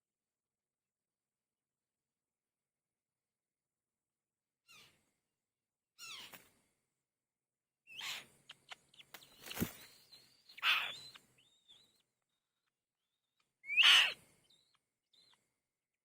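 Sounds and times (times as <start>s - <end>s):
bird calls: 6.0s - 6.5s, 7.9s - 15.6s.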